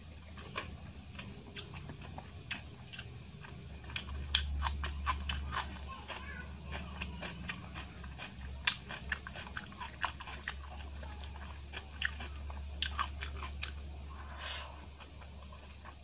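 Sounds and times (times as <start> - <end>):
steady low hum: 0.0 - 16.0
person chewing food: 0.2 - 16.0.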